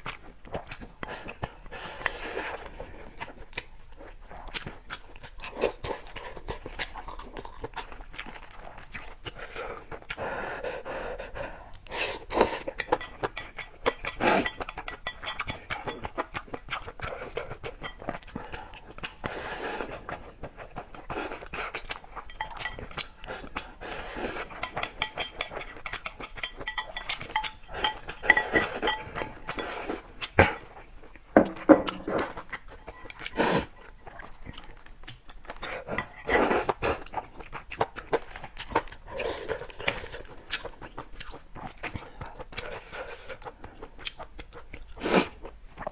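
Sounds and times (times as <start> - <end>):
chewing: 0.0 - 45.9
utensils clinking against bowl: 12.9 - 16.1, 17.8 - 18.1, 22.3 - 23.1, 24.6 - 29.9.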